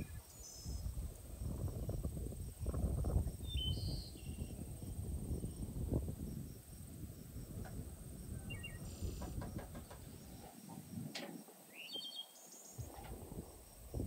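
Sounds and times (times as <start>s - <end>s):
light knocks: 9.2s - 10.1s
short bird chirps: 11.7s - 12.8s.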